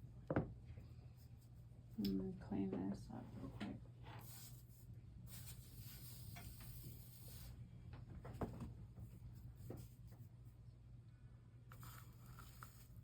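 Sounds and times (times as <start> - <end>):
low steady hum: 0.0 - 13.0
soft wiping hiss on glass: 4.0 - 7.7.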